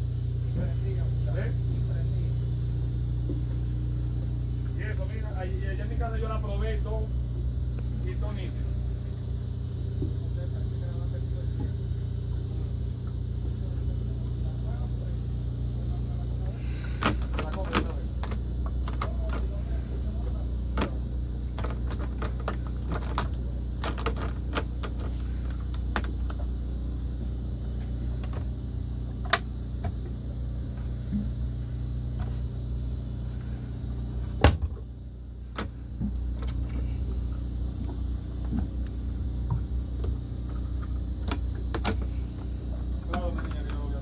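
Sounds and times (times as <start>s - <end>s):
engine idling: 0.0s - 44.0s.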